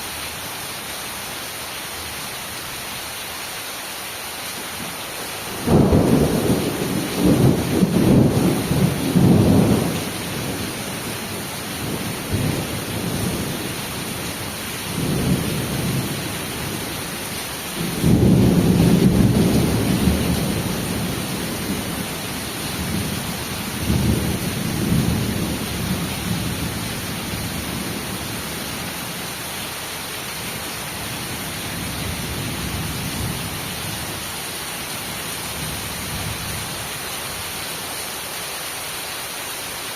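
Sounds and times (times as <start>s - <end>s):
heavy rain falling: 0.0s - 39.9s
thunder rumbling: 5.5s - 14.2s, 14.9s - 17.0s, 17.8s - 28.4s.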